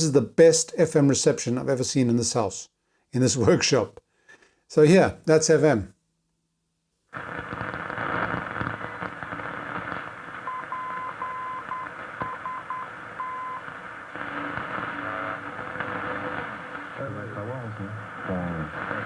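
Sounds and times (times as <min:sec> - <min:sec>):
radio static: 0:07.2 - 0:19.0
morse code beeps: 0:10.4 - 0:13.8.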